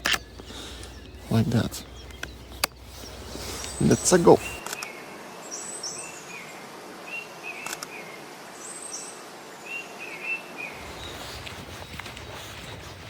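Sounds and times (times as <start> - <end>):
songbirds calling: 0.0 - 13.0
sharp click: 4.6 - 4.9, 7.6 - 7.9
low rumbling noise: 10.7 - 13.0.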